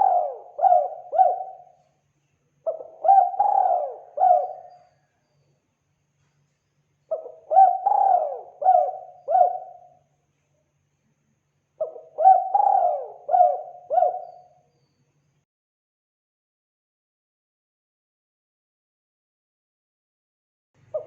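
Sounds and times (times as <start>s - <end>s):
dove cooing: 0.0s - 1.8s, 2.6s - 5.0s, 7.1s - 10.0s, 11.8s - 14.5s.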